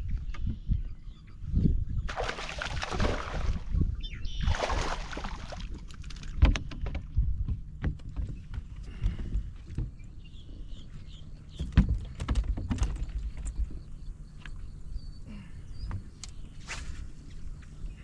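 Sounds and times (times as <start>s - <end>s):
knocks and clatter on boat: 5.6s - 10.2s, 11.4s - 13.9s.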